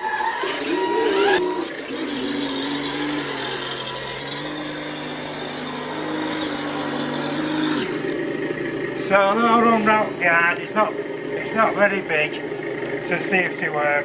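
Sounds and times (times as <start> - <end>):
rc truck motor whining: 0.0 - 14.0.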